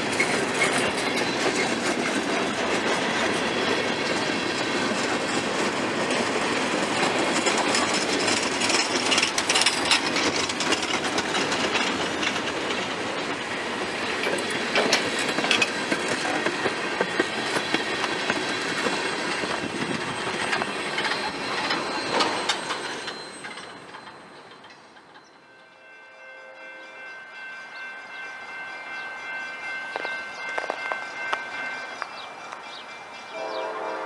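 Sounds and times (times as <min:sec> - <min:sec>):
freight train wheels clattering on rails: 0:00.0 - 0:25.5, 0:27.4 - 0:34.0.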